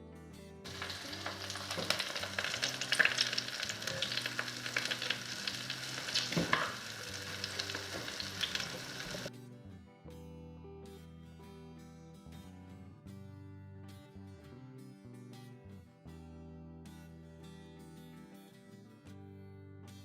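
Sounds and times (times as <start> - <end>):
food sizzling in hot oil: 0.7 - 9.3.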